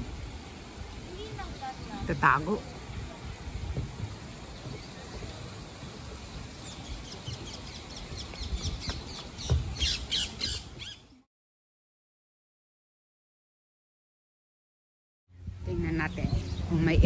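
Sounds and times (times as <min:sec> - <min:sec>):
birds chirping and squawking: 0:06.6 - 0:11.1.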